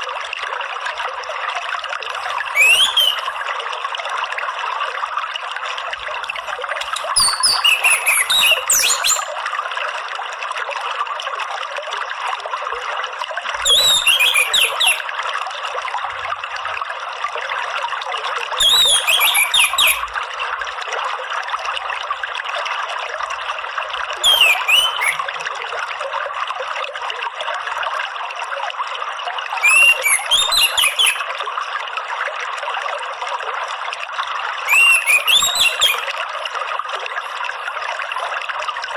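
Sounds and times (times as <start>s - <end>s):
flowing water: 0.0s - 38.9s
thrush singing whistled notes: 2.2s - 3.4s, 6.8s - 9.3s, 13.6s - 15.0s, 18.6s - 20.0s, 24.2s - 25.2s, 29.6s - 31.2s, 34.7s - 36.1s.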